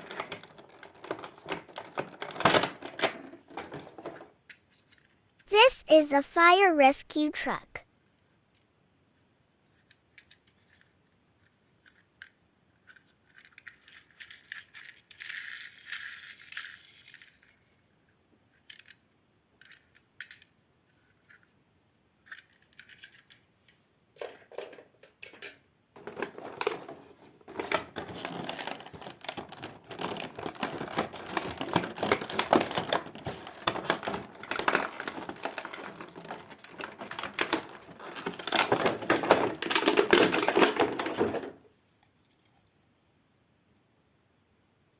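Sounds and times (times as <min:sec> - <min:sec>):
plastic toy pieces clicking: 0:00.0 - 0:05.2, 0:09.8 - 0:17.7, 0:18.5 - 0:19.0, 0:19.6 - 0:21.5, 0:22.2 - 0:23.5, 0:24.2 - 0:41.6.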